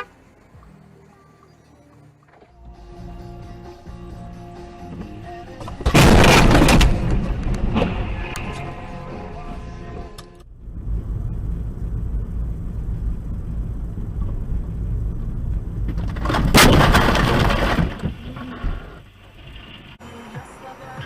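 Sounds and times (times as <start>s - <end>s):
car road and engine rumble: 0.0s - 21.0s
vehicle collision crash: 5.6s - 8.7s, 15.9s - 20.0s.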